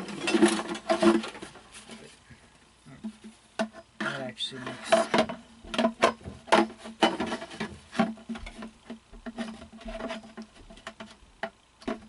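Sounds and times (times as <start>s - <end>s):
parts clicking and knocking: 3.0s - 12.0s.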